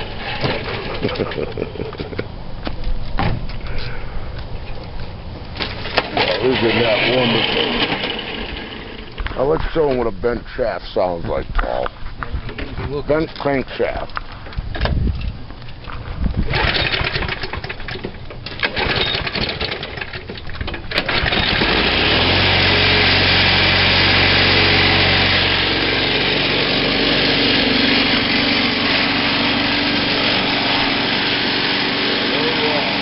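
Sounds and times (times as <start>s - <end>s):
lawn mower engine running: 0.0s - 2.1s, 5.4s - 9.8s, 16.4s - 33.0s.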